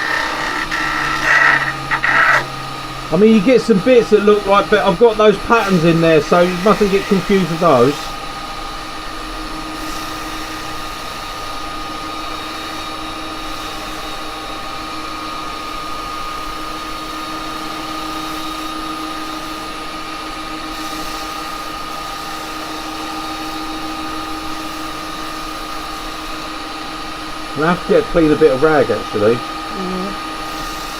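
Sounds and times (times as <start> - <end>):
wood lathe motor hum and whine: 0.0 - 30.9.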